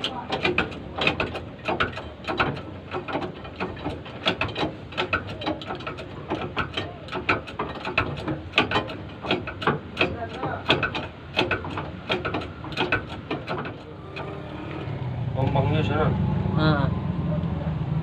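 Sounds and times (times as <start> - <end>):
hand tools clicking on metal: 0.0 - 14.3.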